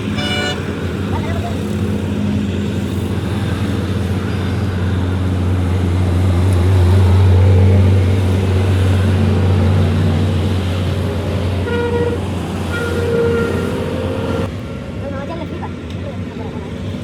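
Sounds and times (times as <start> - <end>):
road traffic: 0.0 - 17.0
vehicle engine humming: 0.0 - 17.0.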